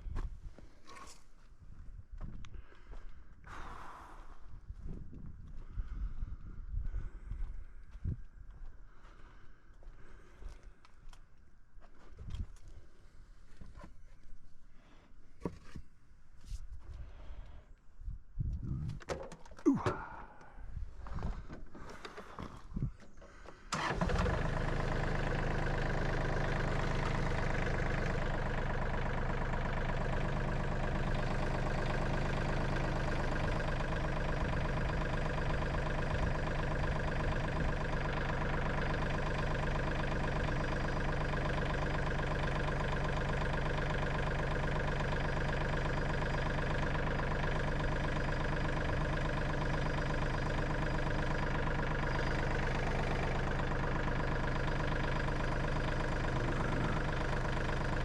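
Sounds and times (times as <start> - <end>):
engine starting and running: 2.7 - 4.5, 18.8 - 58.0.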